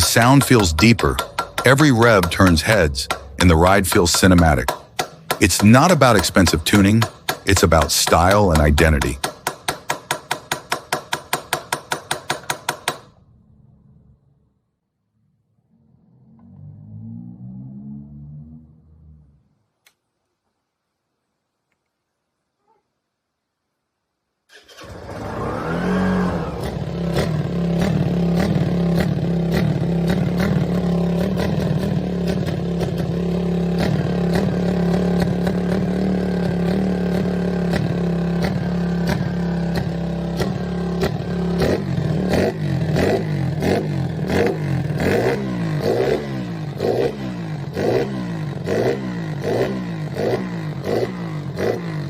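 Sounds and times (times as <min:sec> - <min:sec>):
motorcycle engine revving: 0:00.0 - 0:09.2, 0:15.6 - 0:19.5, 0:24.5 - 0:52.0
motorcycle engine starting: 0:00.0 - 0:09.2, 0:15.6 - 0:19.5, 0:24.5 - 0:52.0
motorcycle engine idling: 0:00.0 - 0:10.8, 0:26.5 - 0:52.0.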